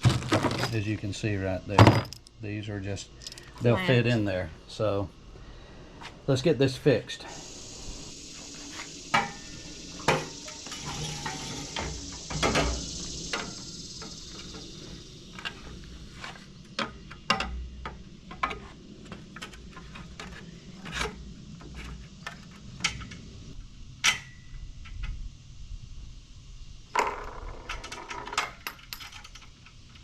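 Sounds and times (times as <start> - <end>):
metallic clinks and knocks: 0.1 - 1.0, 1.8 - 2.4, 3.2 - 3.6, 27.6 - 29.7
faint hiss: 0.7 - 16.6.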